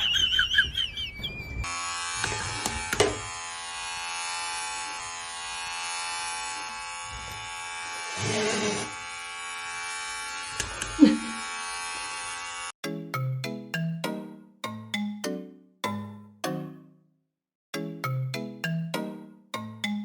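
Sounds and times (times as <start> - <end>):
small electric motor buzzing: 1.6 - 12.8.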